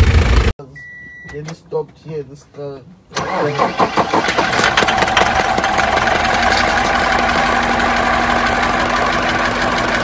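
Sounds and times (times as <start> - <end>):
vehicle engine running: 0.0 - 0.5, 4.7 - 10.0.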